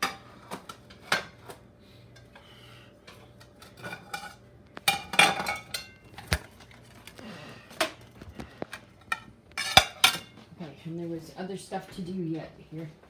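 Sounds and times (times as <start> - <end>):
crockery and cutlery clinking: 3.1 - 6.4, 9.0 - 10.4.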